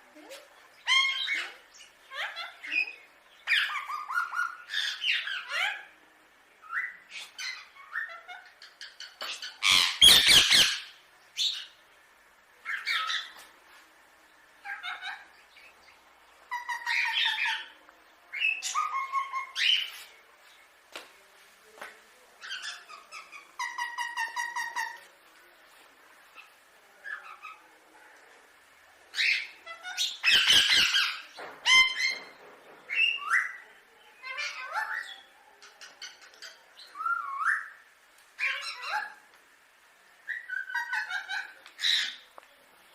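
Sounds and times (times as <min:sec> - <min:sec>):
parakeet squawking and chattering: 0:00.8 - 0:06.0, 0:06.7 - 0:11.8, 0:12.6 - 0:13.4, 0:14.6 - 0:15.7, 0:16.5 - 0:17.8, 0:18.4 - 0:20.0, 0:22.4 - 0:25.0, 0:29.1 - 0:33.6, 0:34.2 - 0:37.7, 0:38.4 - 0:39.2, 0:40.3 - 0:42.3
parakeet squawking: 0:07.1 - 0:11.8, 0:16.5 - 0:17.8, 0:29.2 - 0:32.2, 0:38.4 - 0:39.2.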